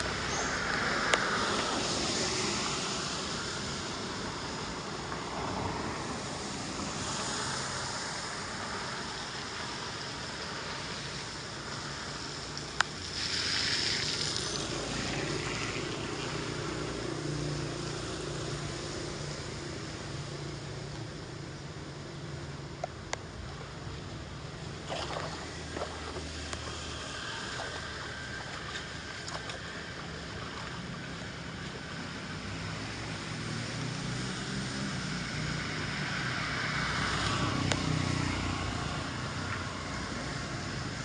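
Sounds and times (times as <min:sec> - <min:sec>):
water rushing into drain: 0:13.0 - 0:16.6, 0:24.8 - 0:31.2.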